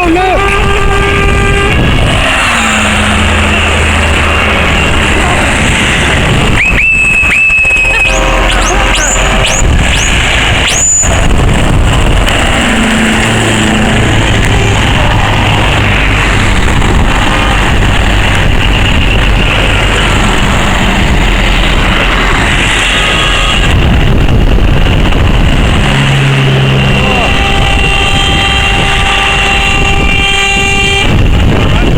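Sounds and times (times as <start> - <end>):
lorry diesel engines: 0.0 - 31.9
loud road noise: 0.0 - 31.9.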